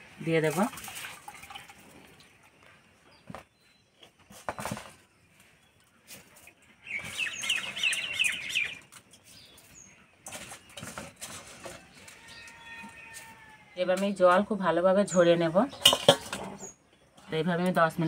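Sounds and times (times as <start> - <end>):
bird chirping: 2.3 - 11.1.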